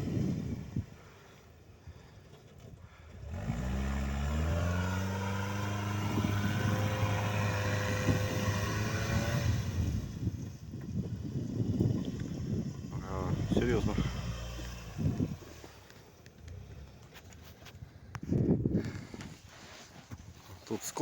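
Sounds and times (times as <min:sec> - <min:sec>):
vehicle engine revving: 0:03.2 - 0:17.3.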